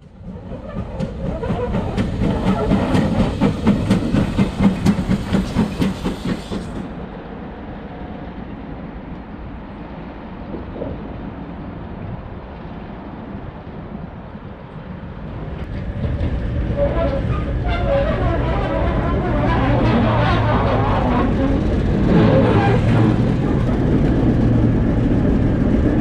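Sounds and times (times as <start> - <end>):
train wheels clicking over rail joints: 0.0 - 6.9
train rumble: 0.0 - 26.0.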